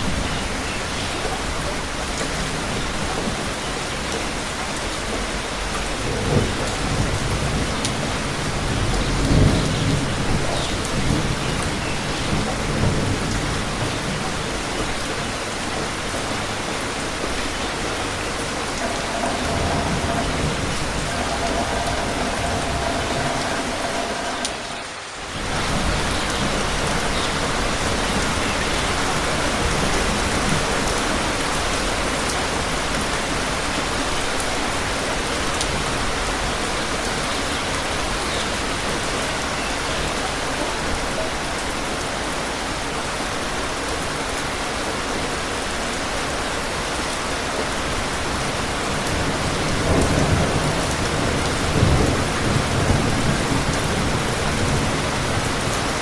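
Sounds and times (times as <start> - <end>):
steady rain: 0.0 - 56.0
thunder rumble: 17.7 - 28.5.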